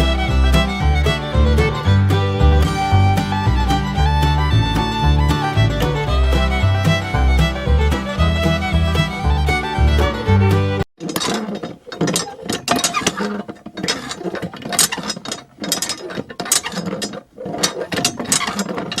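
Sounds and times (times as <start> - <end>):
music: 0.0 - 10.8
small mechanism clicking and rattling: 11.0 - 19.0.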